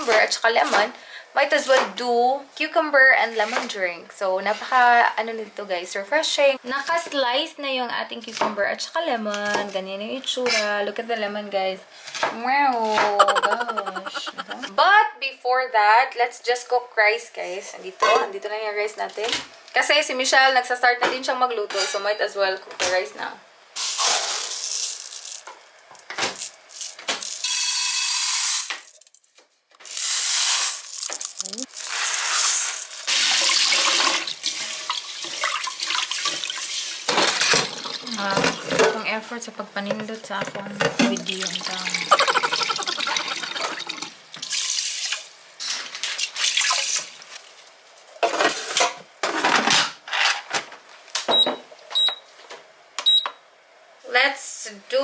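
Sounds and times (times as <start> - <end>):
tap water running into a pot: 27.1 - 28.8, 30.0 - 38.7, 41.0 - 45.3, 45.9 - 47.6
tap water splashing into a pot: 33.1 - 38.6
kitchen scrapes and knocks: 39.8 - 41.3.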